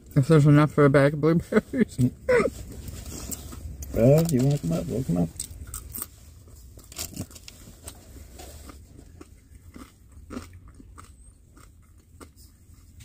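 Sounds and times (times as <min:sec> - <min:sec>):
person chewing food: 0:05.4 - 0:13.0.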